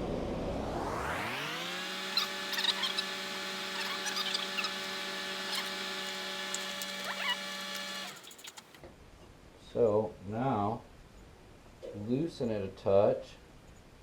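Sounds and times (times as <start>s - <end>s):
power tool motor running: 1.1s - 8.8s
metallic clicks and rattles: 6.5s - 8.8s.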